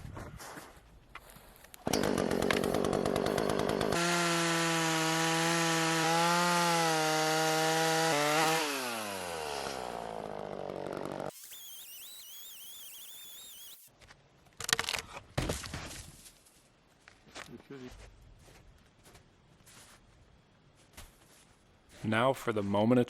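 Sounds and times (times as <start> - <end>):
chainsaw cutting wood: 1.8 - 13.9
chainsaw engine winding down: 1.9 - 13.9.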